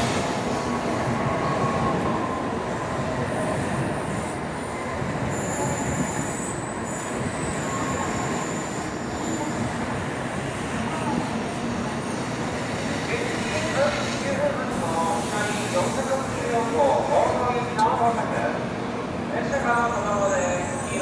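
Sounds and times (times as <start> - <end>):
high-pitched brake squealing: 5.3 - 9.7, 20.0 - 21.0.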